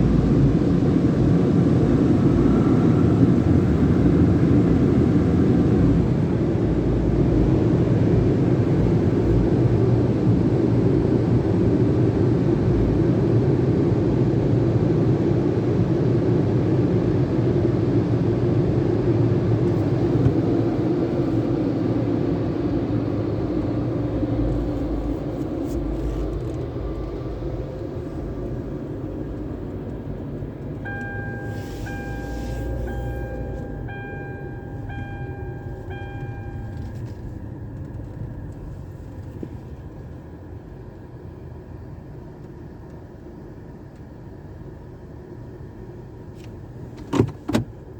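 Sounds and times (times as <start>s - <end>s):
repeating electronic beep: 30.9s - 36.8s.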